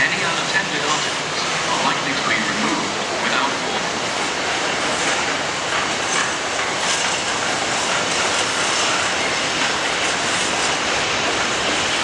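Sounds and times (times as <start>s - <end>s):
freight train rumbling past: 0.0s - 12.0s
wheels clicking over rail joints: 4.0s - 12.0s.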